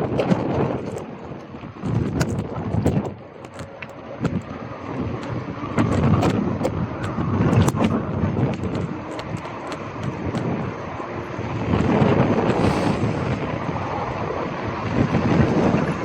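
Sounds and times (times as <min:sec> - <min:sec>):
bike rattling and clicking: 0:00.0 - 0:12.6
bike tyres rumbling: 0:00.0 - 0:16.0
wind on microphone: 0:00.0 - 0:16.0.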